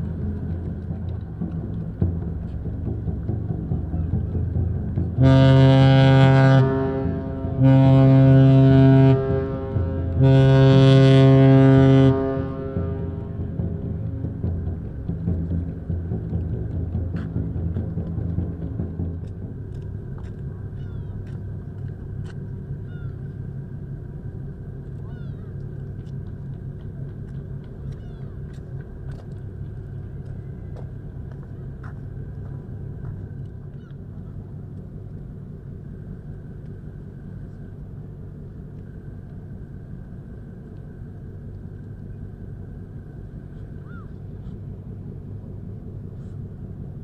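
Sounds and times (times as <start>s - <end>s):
ship engine rumble and hum: 0.0s - 47.0s.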